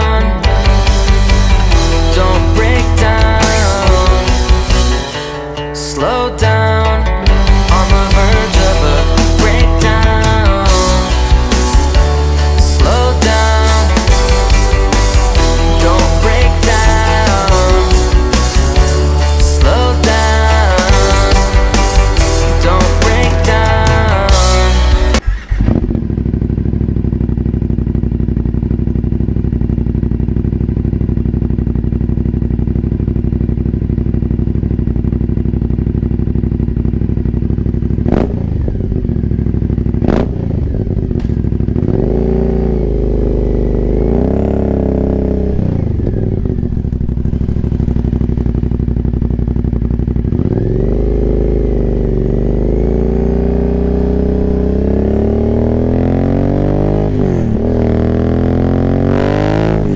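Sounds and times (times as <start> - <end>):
motorcycle engine idling: 0.0 - 59.9
motorcycle throttle blips: 25.2 - 59.9.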